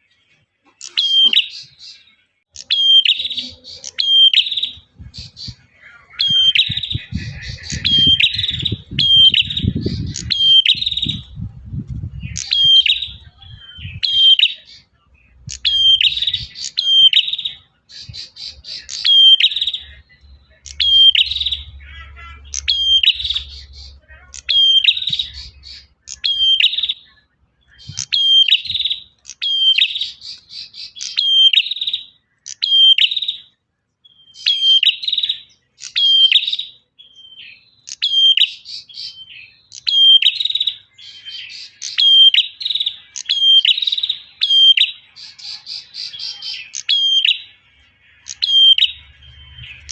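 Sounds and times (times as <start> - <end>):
bird chirping: 0.0 - 49.9
low rumble: 6.7 - 14.0.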